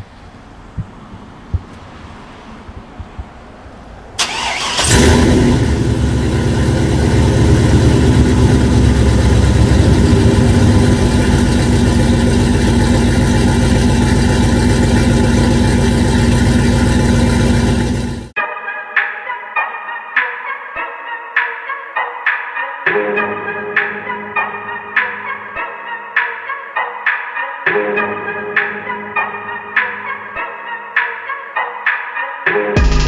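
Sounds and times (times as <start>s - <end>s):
truck engine starting and idling: 4.2s - 18.4s, 32.8s - 33.0s.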